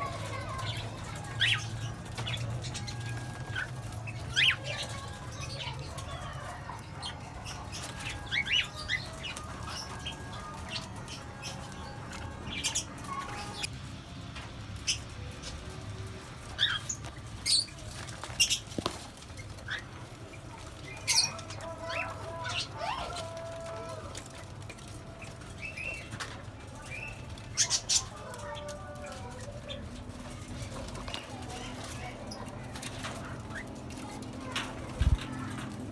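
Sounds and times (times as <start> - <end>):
parrots chirping and calling: 0.0 - 13.7, 14.8 - 35.9
wings flapping: 14.4 - 35.9.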